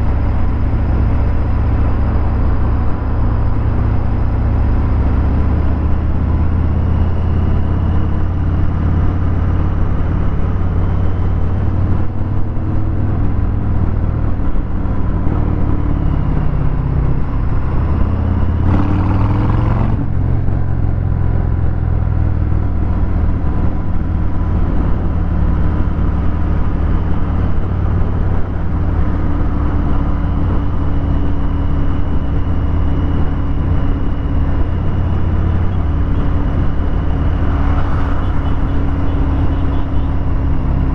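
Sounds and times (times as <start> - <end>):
motorcycle engine revving: 17.7 - 20.4, 33.9 - 40.9.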